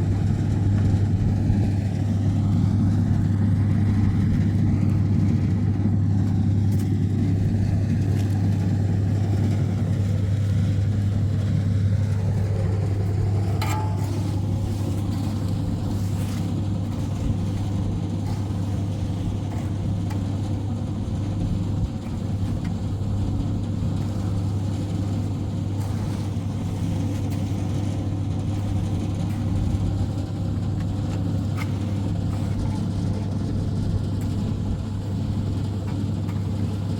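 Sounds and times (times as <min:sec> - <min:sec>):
engine humming: 0:00.0 - 0:36.9.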